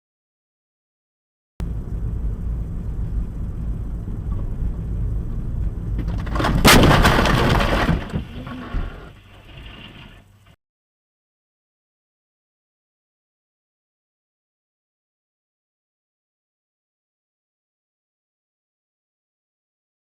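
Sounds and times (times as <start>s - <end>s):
car road and engine rumble: 1.6s - 10.6s
vehicle collision crash: 5.9s - 10.6s.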